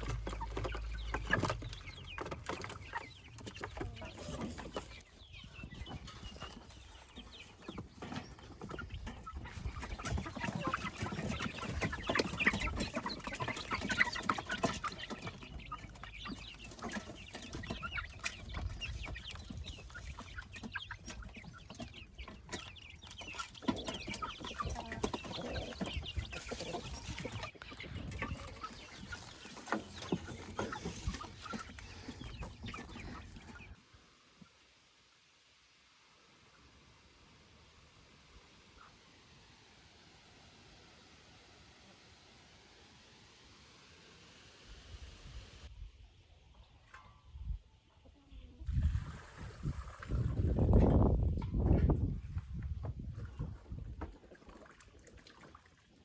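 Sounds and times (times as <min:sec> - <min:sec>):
chickens clucking: 0:00.0 - 0:34.6, 0:46.4 - 0:55.9.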